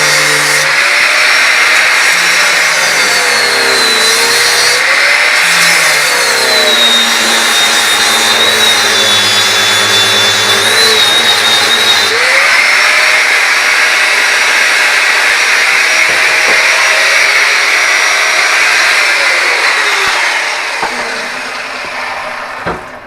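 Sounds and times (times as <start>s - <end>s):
angle grinder cutting steel: 0.0s - 23.0s.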